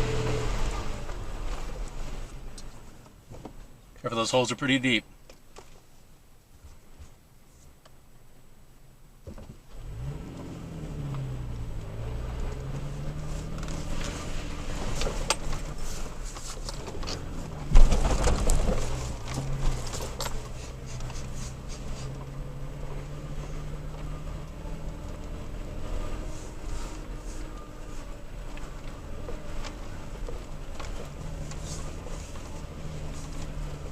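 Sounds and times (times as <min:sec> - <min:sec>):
truck engine droning: 0:00.0 - 0:03.0, 0:09.8 - 0:33.9
knocks and rattles: 0:12.6 - 0:22.3
heavy thud: 0:17.6 - 0:20.8.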